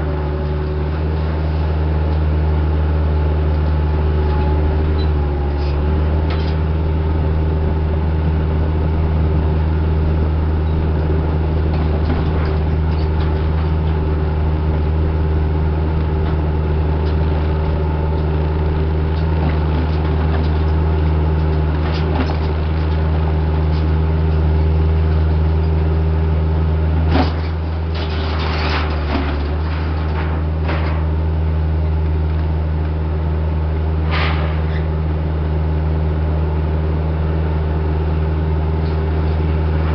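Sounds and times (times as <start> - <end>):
diesel engine droning: 0.0 - 39.9
metal clanks and rattles: 27.1 - 31.2.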